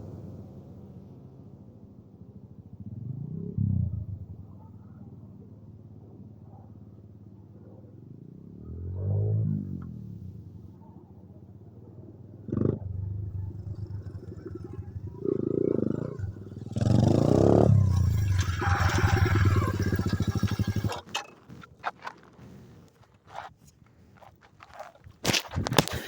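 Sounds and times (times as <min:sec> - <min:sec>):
pit bike engine revving: 0:12.4 - 0:23.5
rustling: 0:17.7 - 0:26.0.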